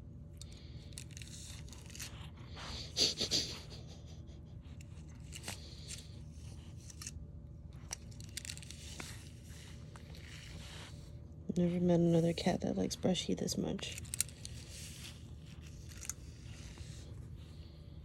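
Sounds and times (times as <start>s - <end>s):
brush stroking cat fur: 8.6s - 18.0s.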